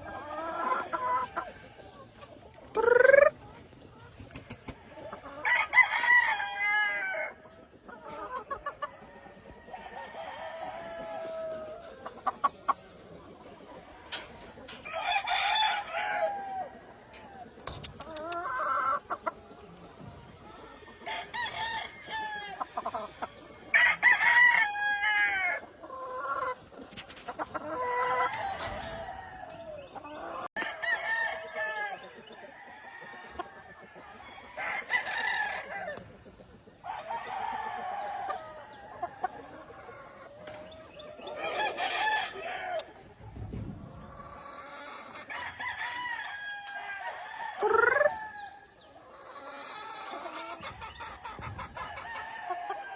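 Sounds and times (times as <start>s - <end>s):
hens clucking: 0.0s - 52.9s
roosters crowing: 4.4s - 7.4s, 8.4s - 12.0s, 14.1s - 19.1s, 20.6s - 26.6s, 27.6s - 36.1s, 36.8s - 52.9s.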